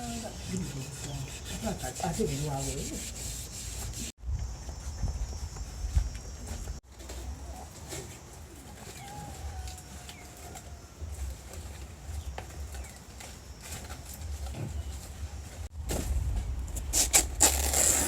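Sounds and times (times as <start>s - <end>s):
wind rumble on microphone: 4.2s - 6.8s, 15.7s - 18.0s.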